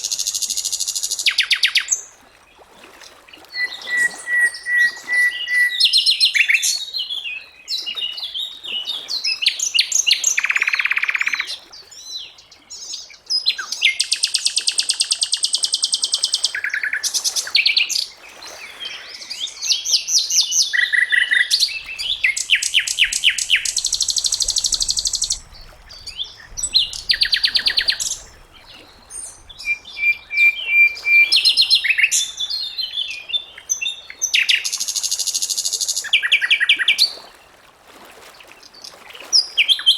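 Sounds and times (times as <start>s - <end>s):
flycatcher singing: 20.8s - 28.4s.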